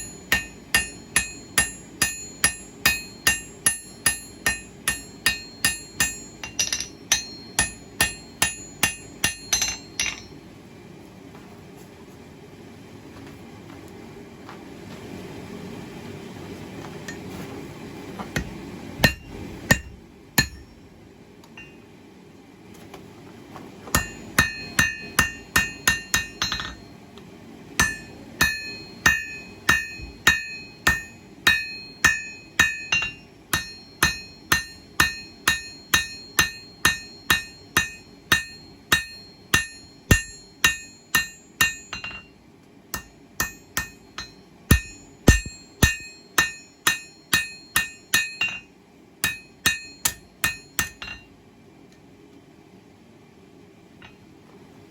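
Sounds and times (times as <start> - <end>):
hammer striking steel on anvil: 0.0 - 10.4, 18.4 - 20.8, 21.6 - 21.8, 23.9 - 26.9, 27.8 - 51.3.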